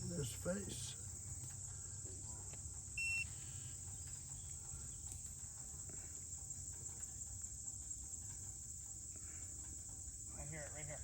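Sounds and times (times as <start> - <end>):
short beep: 3.0 - 3.2.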